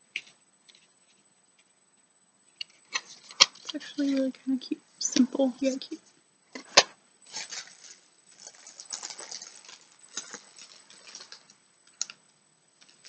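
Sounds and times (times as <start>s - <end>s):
packaging crinkling and rustling: 6.6s - 12.2s.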